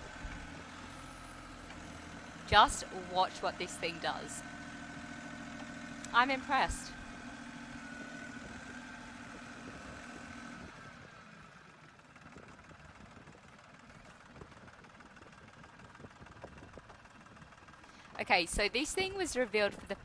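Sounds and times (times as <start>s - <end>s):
steady engine whine: 0.0s - 20.0s
tractor engine rumble: 0.0s - 20.0s.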